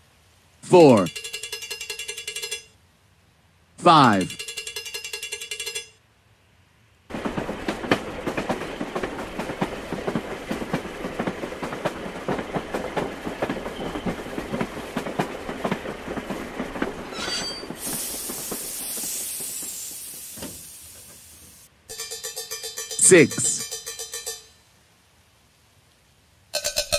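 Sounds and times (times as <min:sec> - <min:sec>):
steady hiss: 0:06.3 - 0:22.0
train wheels clattering over joints: 0:07.1 - 0:24.5.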